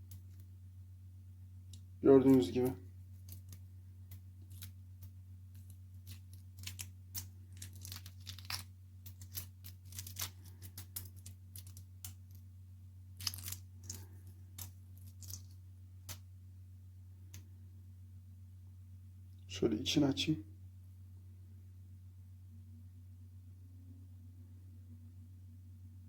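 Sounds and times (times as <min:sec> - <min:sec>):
eggshell cracking and crinkling: 0:00.0 - 0:00.5, 0:01.6 - 0:16.3
steady low hum: 0:00.0 - 0:26.0.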